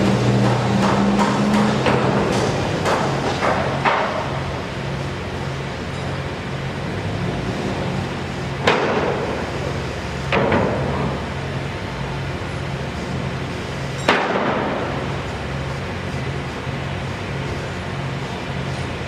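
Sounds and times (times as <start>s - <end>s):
engine drone: 0.0s - 19.0s
sharp ringing knocks: 14.0s - 14.7s.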